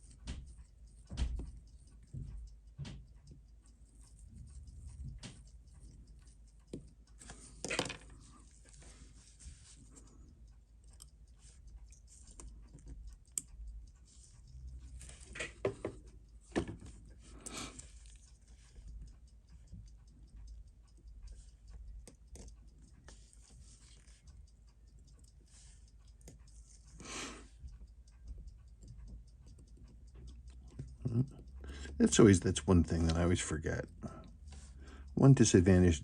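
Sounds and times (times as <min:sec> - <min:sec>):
small tool clicks and taps on metal: 0:00.0 - 0:03.4, 0:04.4 - 0:08.4.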